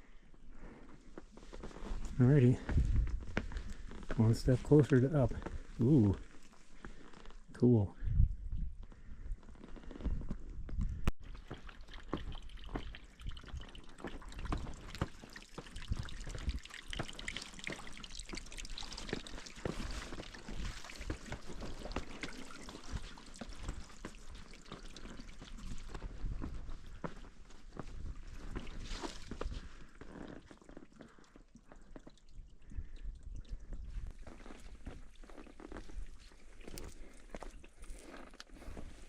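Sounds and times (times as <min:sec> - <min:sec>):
water trickling: 0:11.2 - 0:38.4.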